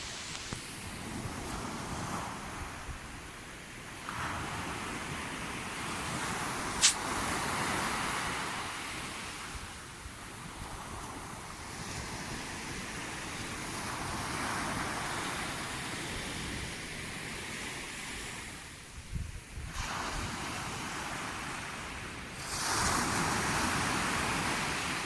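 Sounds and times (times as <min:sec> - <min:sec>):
sea waves washing on shore: 0:00.0 - 0:25.0
wind thumps on microphone: 0:06.7 - 0:07.6.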